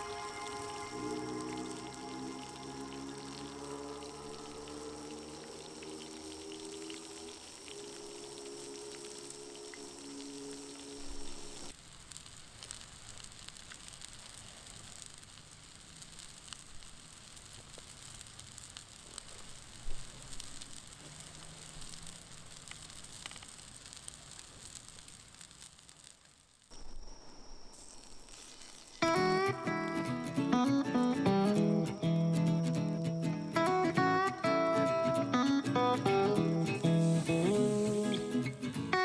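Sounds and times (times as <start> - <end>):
music: 0.0 - 4.6, 29.0 - 39.0
campfire crackle: 0.0 - 39.0
steady low hiss: 0.0 - 39.0.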